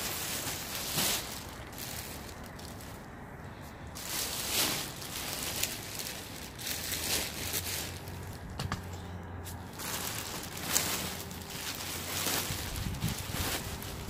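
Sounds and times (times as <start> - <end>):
rustling and crinkling items: 0.0 - 14.0.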